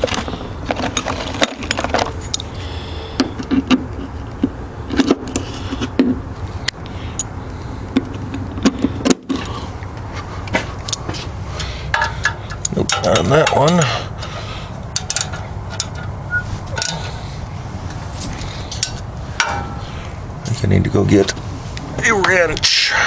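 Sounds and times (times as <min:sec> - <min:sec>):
steady low hum: 0:00.0 - 0:23.0
hand tools clinking on metal: 0:11.9 - 0:14.3, 0:14.9 - 0:16.1, 0:16.7 - 0:17.2, 0:18.7 - 0:19.8.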